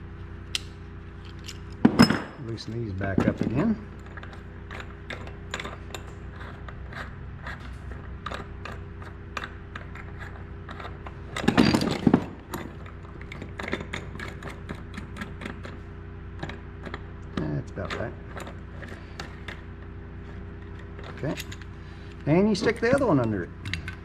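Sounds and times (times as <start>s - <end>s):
metal clatter: 1.2s - 24.0s.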